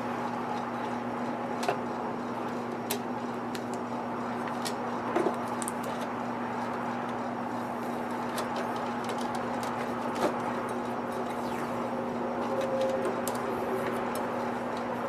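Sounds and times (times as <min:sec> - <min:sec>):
low hum: 0:10.4 - 0:15.0.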